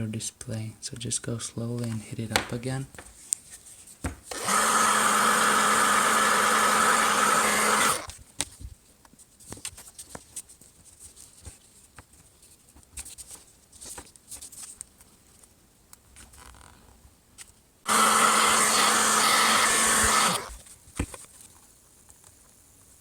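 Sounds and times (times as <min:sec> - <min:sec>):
hot-air blower humming: 0:04.3 - 0:08.1, 0:17.9 - 0:20.6.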